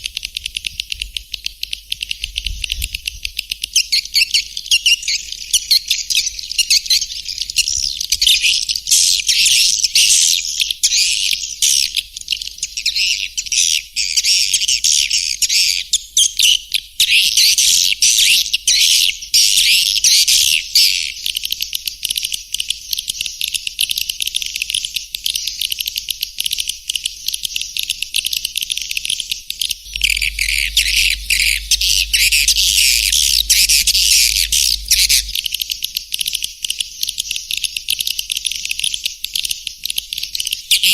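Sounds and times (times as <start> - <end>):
swiftlets twittering: 29.9 - 35.6
low hum: 29.9 - 35.8.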